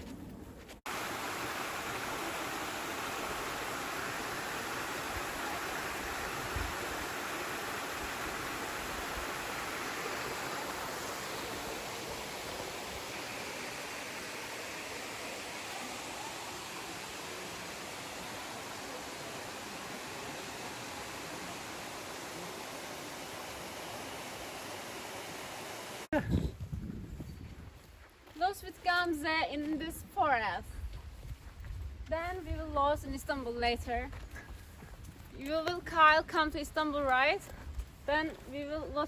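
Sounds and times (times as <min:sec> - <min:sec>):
waterfall rushing: 0:00.9 - 0:26.1.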